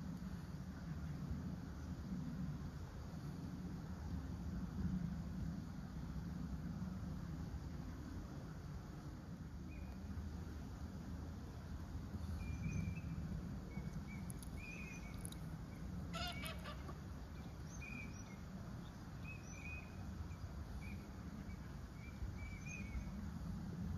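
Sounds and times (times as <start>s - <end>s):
faint bird chirps: 12.2s - 23.2s
harsh repeated bird calls: 16.1s - 18.1s.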